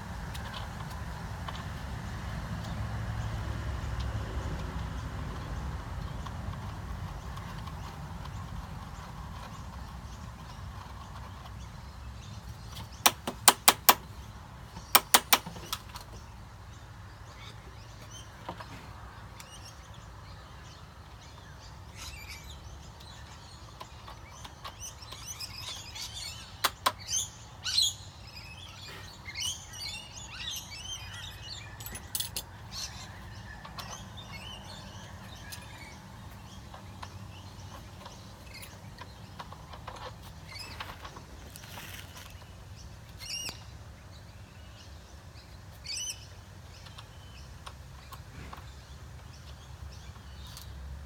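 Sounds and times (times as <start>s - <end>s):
small birds chirping: 0.0s - 51.0s
sharp clicks or taps: 13.0s - 14.1s, 14.9s - 15.8s
single knocks: 13.0s - 14.1s.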